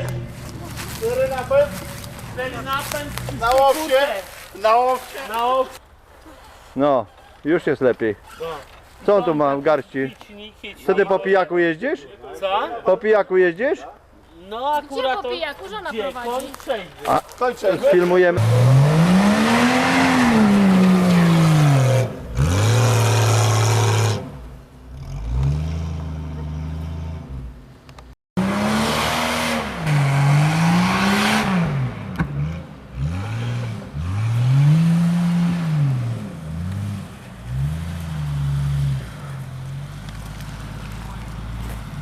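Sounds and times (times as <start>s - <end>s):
engine revving hard: 18.4s - 27.3s, 28.4s - 39.4s.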